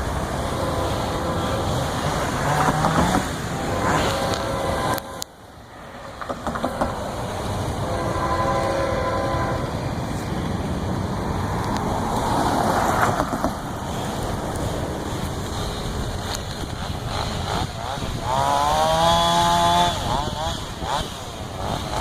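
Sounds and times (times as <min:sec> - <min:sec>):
locomotive horn blasts: 0:00.0 - 0:10.3
train rumbling: 0:00.0 - 0:22.0
wheels clattering over rails: 0:00.0 - 0:22.0.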